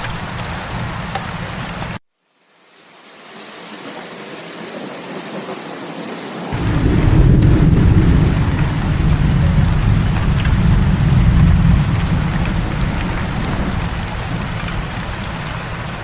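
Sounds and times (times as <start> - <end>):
heavy rain: 0.0 - 2.0, 3.1 - 16.0
rolling thunder: 6.6 - 16.0.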